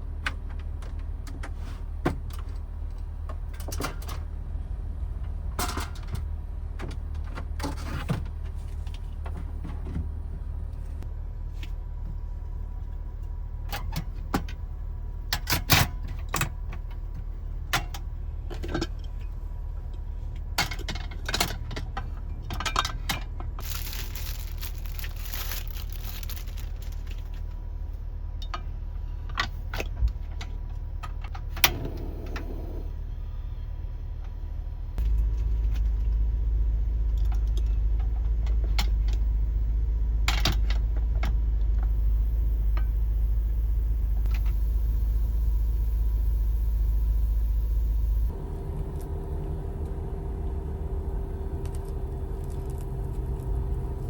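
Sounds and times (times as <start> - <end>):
small objects clicking and clinking: 23.6 - 27.2
low rumble: 23.6 - 27.4, 34.8 - 54.0.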